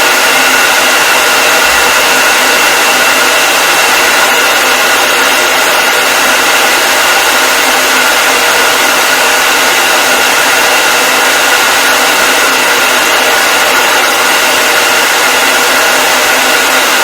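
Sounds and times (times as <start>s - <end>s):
hair dryer blowing: 0.0s - 17.0s.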